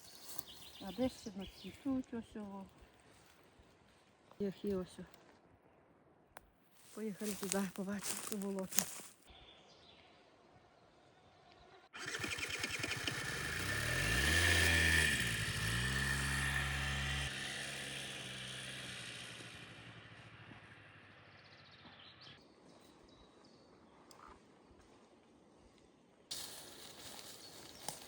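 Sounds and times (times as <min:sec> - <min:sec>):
vehicle engine revving: 0:12.0 - 0:22.4.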